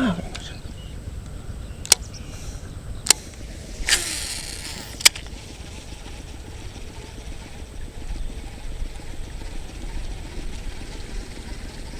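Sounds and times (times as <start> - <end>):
sharp clicks: 1.8 - 2.2, 3.0 - 5.4
short hissing rush: 2.1 - 5.6.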